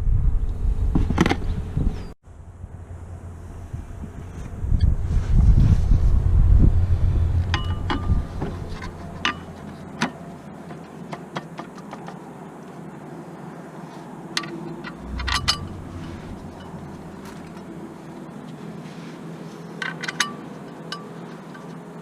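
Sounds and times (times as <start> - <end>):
low rumble: 0.0 - 9.2, 14.8 - 18.4
metallic clicks and knocks: 7.5 - 12.2, 14.4 - 17.7
metal clinks: 14.4 - 17.7.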